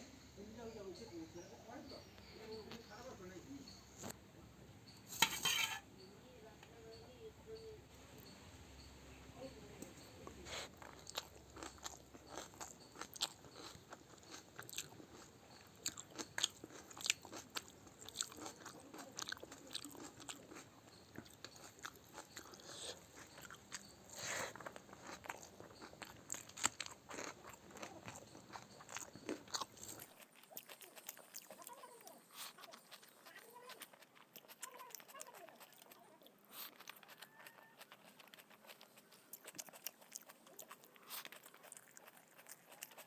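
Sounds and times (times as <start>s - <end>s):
person crunching and chewing food: 10.2s - 43.0s.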